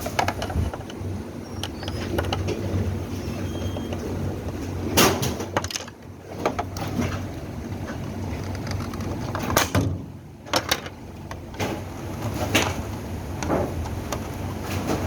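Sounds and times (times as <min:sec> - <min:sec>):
knocks and clicks of tools: 0:00.0 - 0:01.0, 0:01.6 - 0:02.9.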